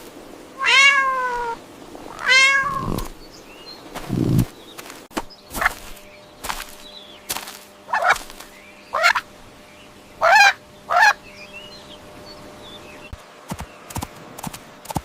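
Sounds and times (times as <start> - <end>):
poultry calling: 0.6 - 3.1, 7.9 - 9.3, 9.9 - 12.1.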